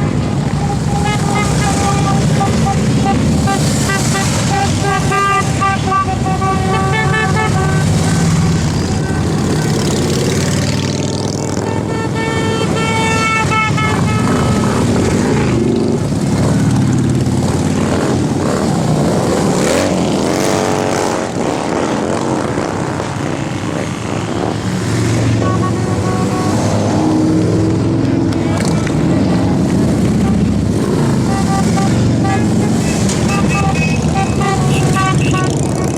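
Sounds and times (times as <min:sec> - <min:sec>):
horns sounding steady notes: 0:00.0 - 0:09.6, 0:11.6 - 0:15.0, 0:25.3 - 0:27.3, 0:29.8 - 0:35.9
motorcycles riding past: 0:00.0 - 0:35.9.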